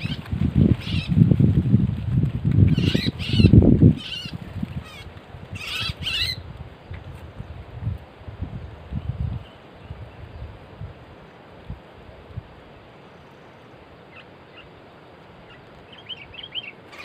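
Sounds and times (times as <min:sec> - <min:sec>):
birds harsh chattering calls: 0:00.0 - 0:01.2, 0:02.7 - 0:06.4, 0:15.4 - 0:17.0
rustling and flapping: 0:00.0 - 0:05.6.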